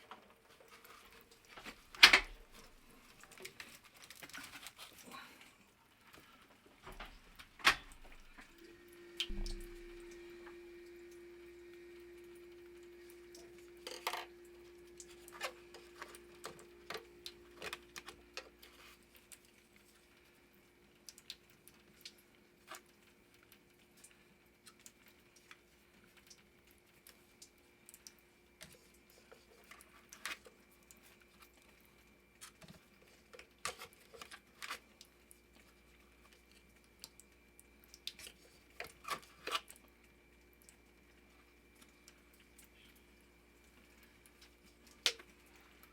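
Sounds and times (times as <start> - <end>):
faint steady hum: 0.1 - 45.9
tools and plumbing parts clicking: 13.8 - 14.3.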